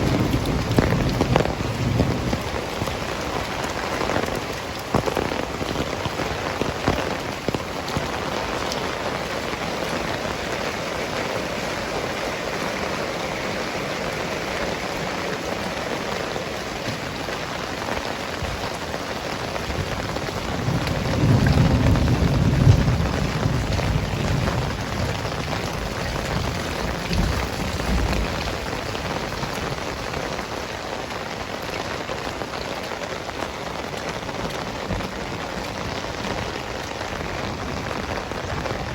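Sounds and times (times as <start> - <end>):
low thunder rumble: 0.0 - 17.2, 19.4 - 30.4
heavy rain falling: 0.0 - 38.9.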